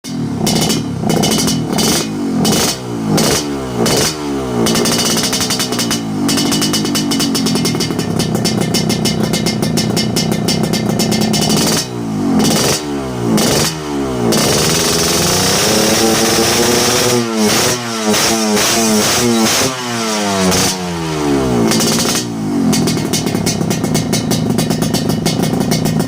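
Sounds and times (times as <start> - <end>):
motorcycle engine idling: 0.0 - 16.8, 17.4 - 26.0
motorcycle throttle blips: 0.0 - 26.0.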